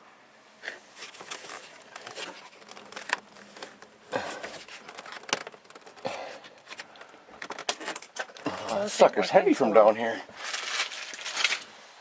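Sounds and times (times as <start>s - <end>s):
handling rustling: 0.7s - 8.4s, 9.4s - 12.0s.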